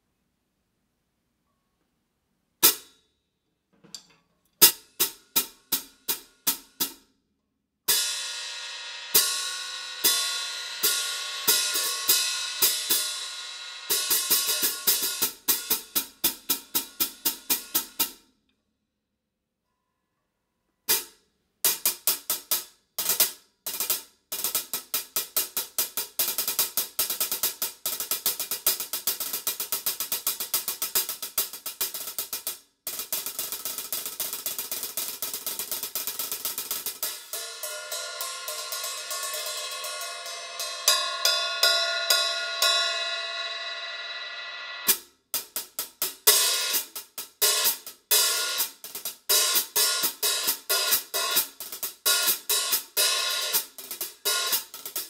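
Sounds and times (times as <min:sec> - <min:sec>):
hi-hat strokes with stick: 0:24.6 - 0:55.0.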